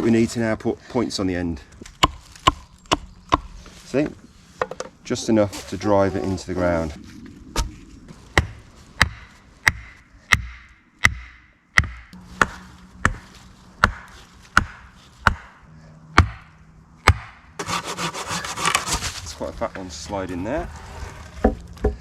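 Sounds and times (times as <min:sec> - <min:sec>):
blade chopping wooden stake: 0:01.8 - 0:03.5, 0:08.4 - 0:15.6, 0:16.2 - 0:19.2.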